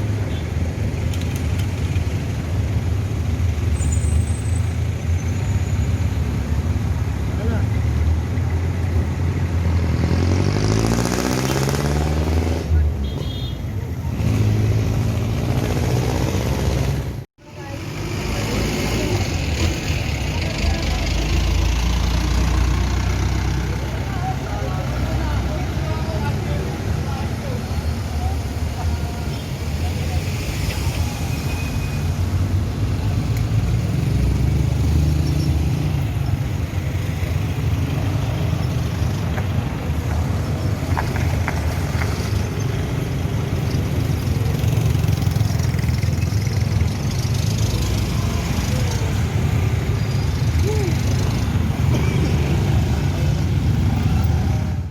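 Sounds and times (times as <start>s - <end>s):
vehicles passing by: 0.0s - 54.9s.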